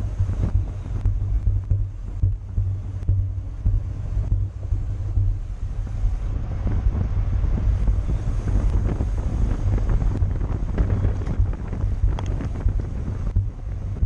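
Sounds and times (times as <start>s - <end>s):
wind buffeting microphone: 0.0s - 14.0s
faint ticks: 9.9s - 13.6s.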